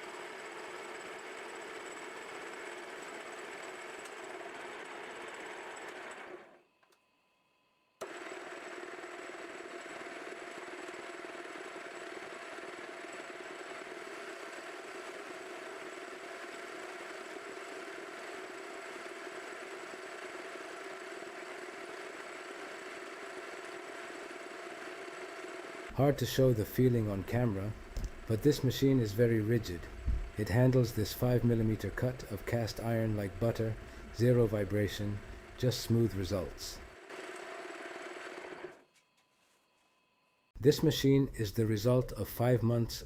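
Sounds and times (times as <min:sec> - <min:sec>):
milling machine humming: 0:08.0 - 0:38.8.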